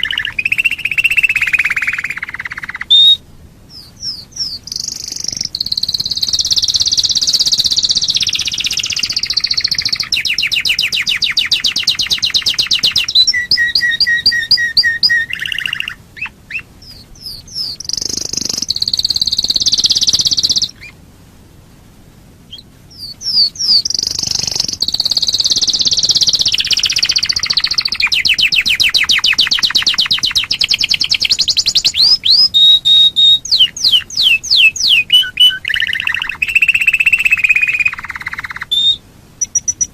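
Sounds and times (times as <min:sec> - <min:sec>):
canary singing trills: 0:00.0 - 0:21.0, 0:22.4 - 0:39.9.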